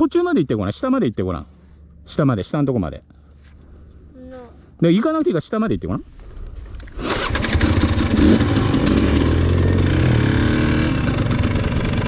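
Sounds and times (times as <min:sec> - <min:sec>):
dirt bike engine running: 0:06.9 - 0:12.0.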